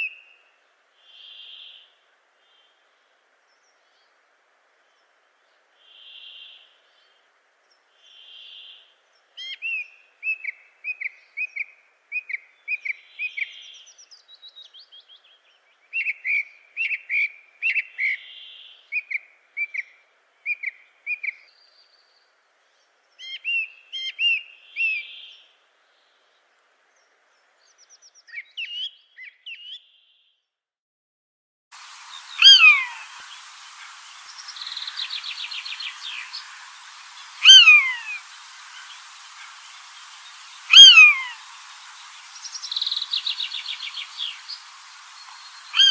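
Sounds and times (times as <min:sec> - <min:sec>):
birds chirping: 0:31.8 - 0:45.9
birds whistling: 0:32.1 - 0:45.9.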